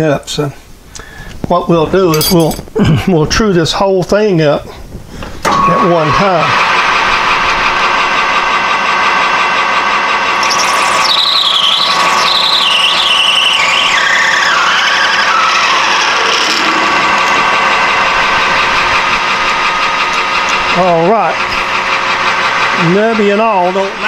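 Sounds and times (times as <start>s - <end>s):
metal lathe running: 5.4s - 24.0s
cutting tool squealing: 10.3s - 23.4s.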